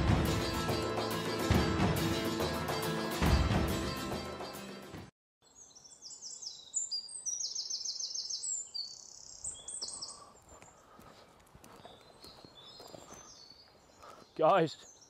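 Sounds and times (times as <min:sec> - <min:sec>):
songbirds chirping: 0:05.4 - 0:15.0.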